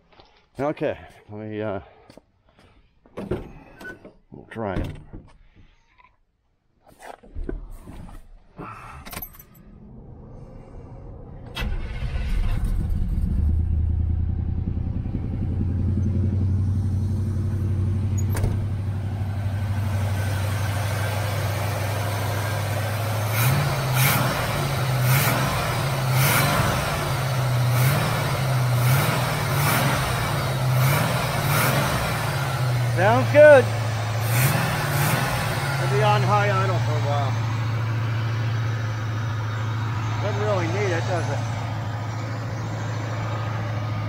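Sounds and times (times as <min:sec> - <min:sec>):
car engine cranking and idling: 0:09.0 - 0:44.0.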